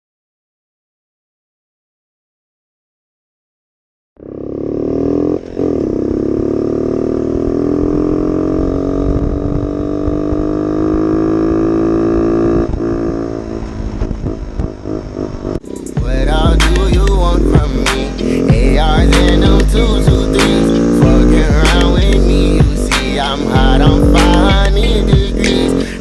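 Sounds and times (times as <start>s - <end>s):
motorbike engine running: 4.2s - 26.0s.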